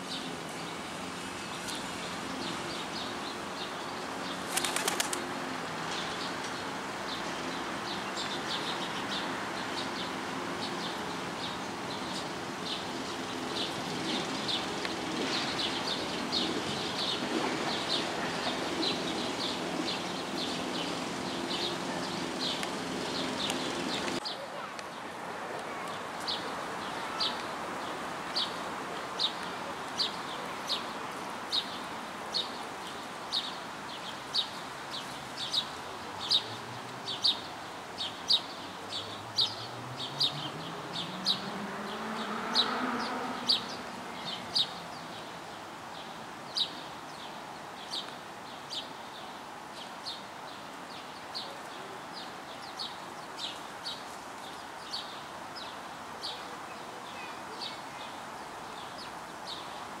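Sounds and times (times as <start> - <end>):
passing vehicle engine: 39.1 - 44.6.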